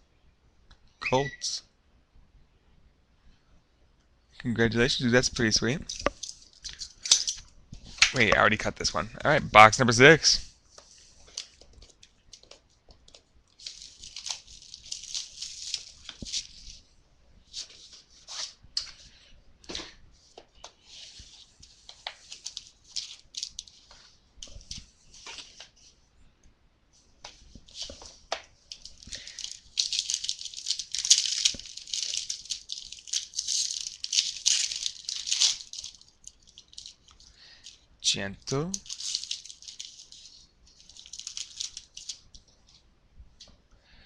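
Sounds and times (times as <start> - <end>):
plastic wrapping crinkling and tearing: 11.0 - 16.8, 21.1 - 25.7, 27.6 - 37.9, 38.5 - 42.4.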